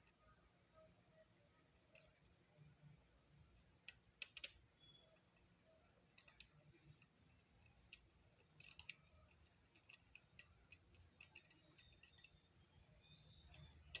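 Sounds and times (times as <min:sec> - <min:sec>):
small hard parts clicking: 0:06.1 - 0:14.0.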